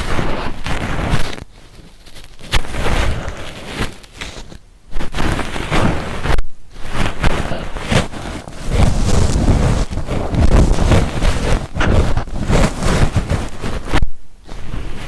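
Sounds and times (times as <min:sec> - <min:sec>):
ear-cleaning tools scraping: 0:06.8 - 0:14.0.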